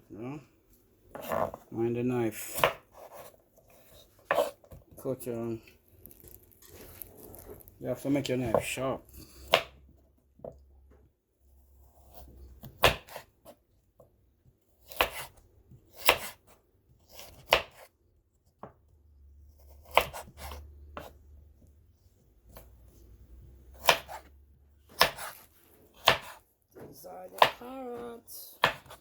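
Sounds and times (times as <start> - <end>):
knife chopping carrot on board: 2.5 - 3.4, 4.2 - 4.8, 9.4 - 9.8, 12.0 - 14.1, 14.8 - 17.9, 19.6 - 21.2, 23.6 - 26.4, 27.3 - 29.0.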